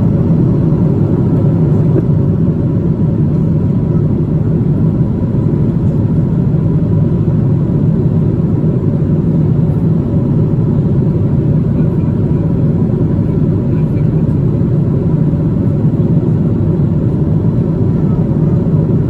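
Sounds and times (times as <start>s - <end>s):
airliner cabin engine rumble: 0.0s - 19.0s.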